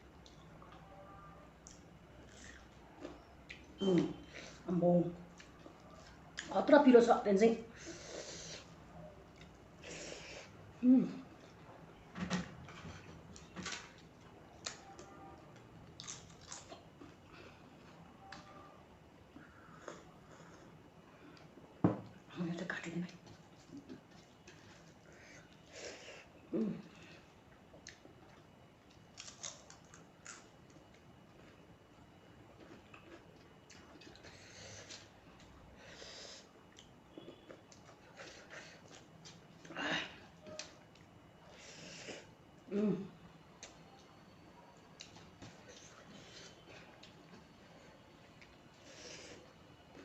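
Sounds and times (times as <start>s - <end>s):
person chewing food: 1.6s - 4.2s, 15.5s - 18.0s, 27.4s - 31.7s, 32.4s - 39.7s
soft chewing crunches: 1.6s - 4.6s, 12.6s - 39.7s, 43.5s - 50.0s.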